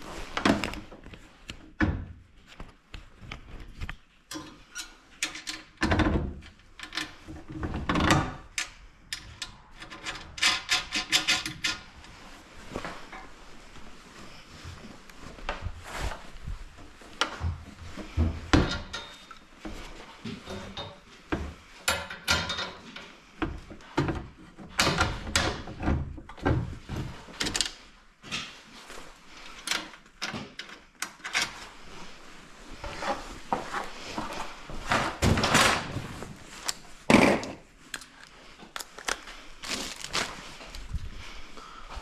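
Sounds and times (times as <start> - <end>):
tools knocking and scraping: 9.2 - 11.9, 17.2 - 27.6.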